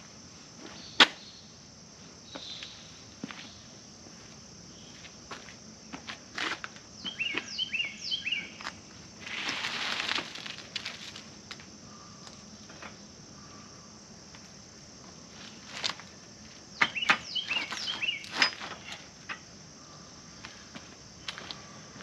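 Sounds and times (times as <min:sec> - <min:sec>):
high insect buzz: 0:00.0 - 0:22.0
bird chirping: 0:07.0 - 0:08.6, 0:16.8 - 0:19.0.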